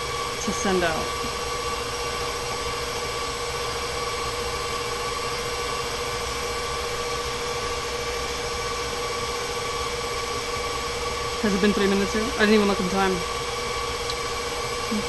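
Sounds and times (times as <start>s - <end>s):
stand mixer whining: 0.0s - 15.0s.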